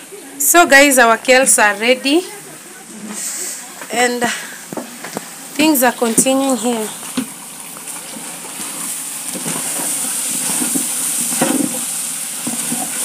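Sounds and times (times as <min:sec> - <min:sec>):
food sizzling in hot oil: 0:03.4 - 0:13.0.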